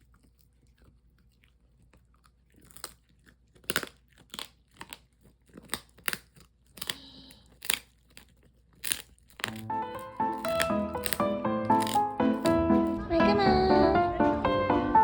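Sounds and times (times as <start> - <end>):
crunchy food being chewed: 0.0 - 13.0.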